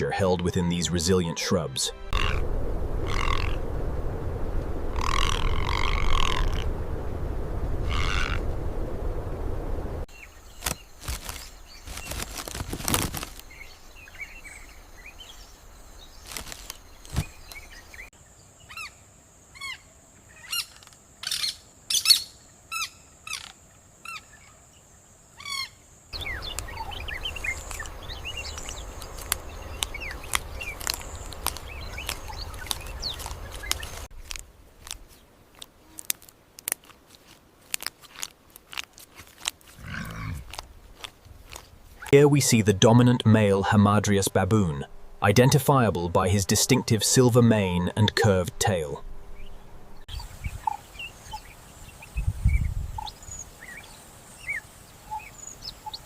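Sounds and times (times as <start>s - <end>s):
birds chirping: 10.1s - 34.3s, 39.7s - 56.0s.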